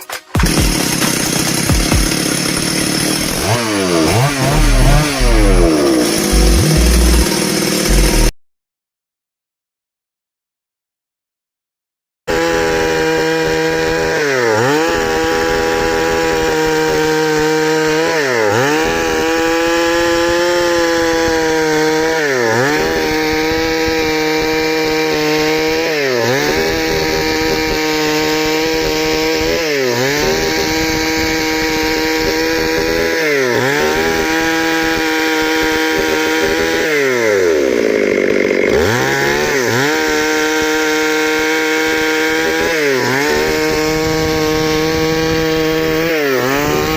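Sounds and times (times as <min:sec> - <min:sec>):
chainsaw cutting wood: 0:00.0 - 0:08.4, 0:12.3 - 0:46.9.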